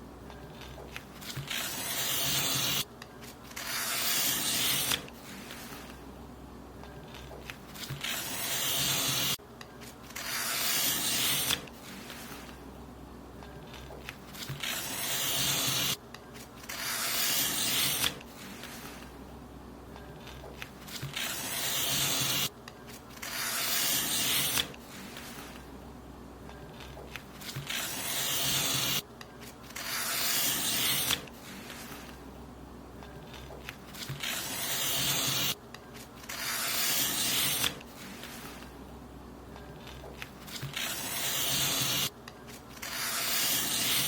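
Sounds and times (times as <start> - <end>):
paper being cut: 0.6 - 5.9, 7.1 - 9.4, 10.1 - 12.5, 13.8 - 16.0, 16.6 - 19.0, 20.3 - 22.5, 23.1 - 25.6, 26.8 - 29.0, 29.7 - 32.1, 33.3 - 35.6, 36.2 - 38.7, 39.8 - 44.0.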